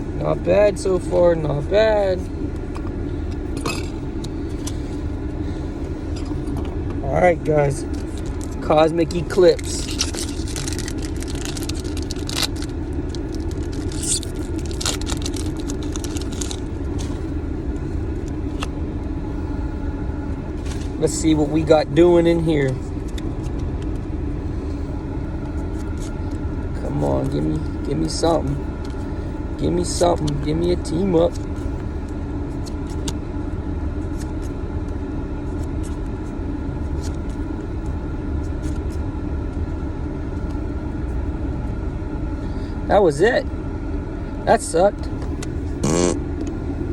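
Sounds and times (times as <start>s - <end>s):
car cabin hum: 0.0s - 46.9s
cards being handled: 7.8s - 17.3s, 22.7s - 24.1s, 31.3s - 33.2s, 35.5s - 39.0s
foil wrapper crinkling and tearing: 7.9s - 8.6s, 9.5s - 17.2s.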